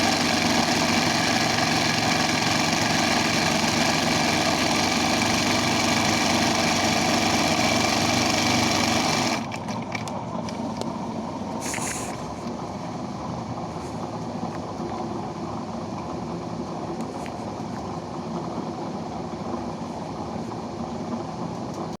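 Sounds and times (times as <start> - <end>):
embroidery machine whirring: 0.0 - 17.0
steady hum: 10.2 - 21.6.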